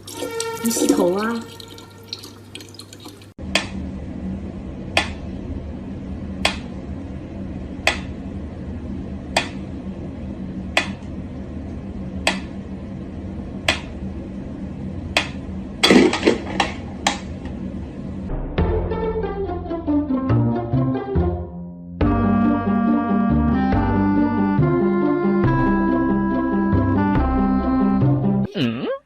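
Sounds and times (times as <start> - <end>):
steady low hum: 3.4 - 20.2.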